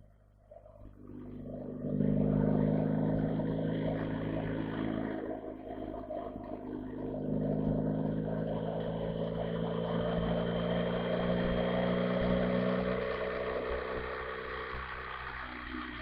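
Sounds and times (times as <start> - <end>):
motorcycle engine running: 0.8 - 16.0.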